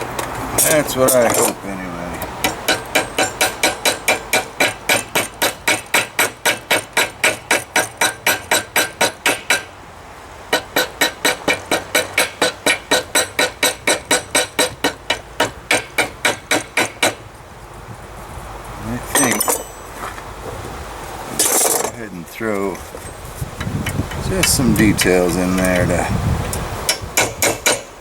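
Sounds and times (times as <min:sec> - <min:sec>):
hammer ringing on hot metal: 0:02.4 - 0:09.7, 0:10.5 - 0:17.2, 0:19.1 - 0:19.9, 0:26.9 - 0:28.0.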